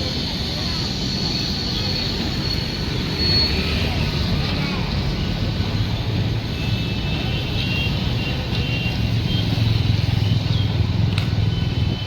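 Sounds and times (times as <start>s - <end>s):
train rumbling: 0.0s - 6.6s.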